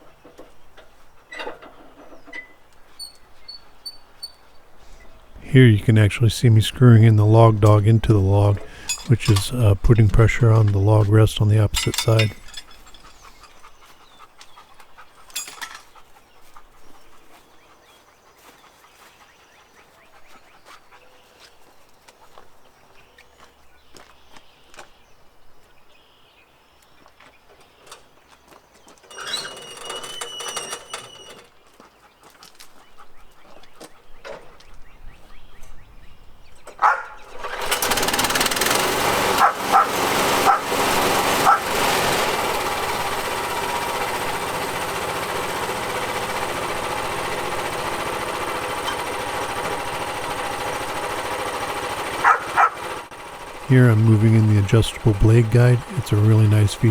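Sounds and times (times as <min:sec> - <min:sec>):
bandsaw mill engine running: 0:05.4 - 0:13.2, 0:37.3 - 0:56.9.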